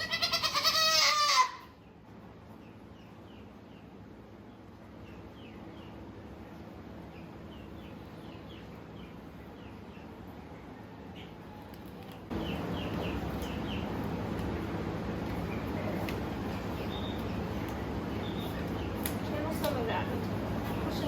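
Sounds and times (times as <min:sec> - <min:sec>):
small bird chirping: 0:12.3 - 0:14.0, 0:16.5 - 0:19.1.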